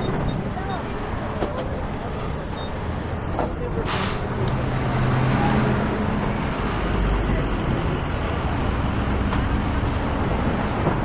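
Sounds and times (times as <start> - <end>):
diesel truck engine running: 0.0 - 11.0
road noise hiss: 3.8 - 7.2, 8.7 - 11.0.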